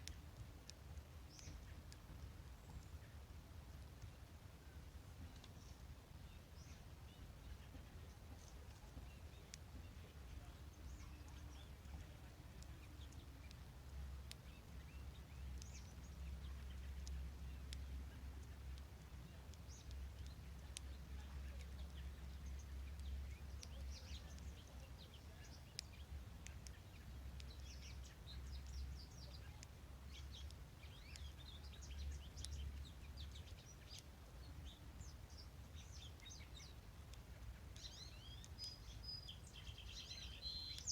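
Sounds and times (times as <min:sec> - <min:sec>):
faint songbird chirps: 0:00.0 - 0:40.9
low background rumble: 0:00.0 - 0:40.9.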